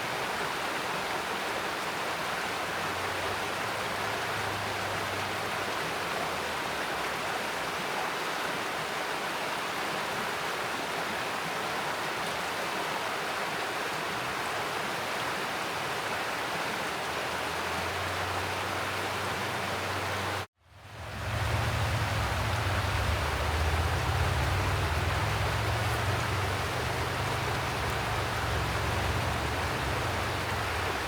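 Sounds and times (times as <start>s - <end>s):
stream rushing over rocks: 0.0s - 31.0s
deep rumble: 20.8s - 31.0s.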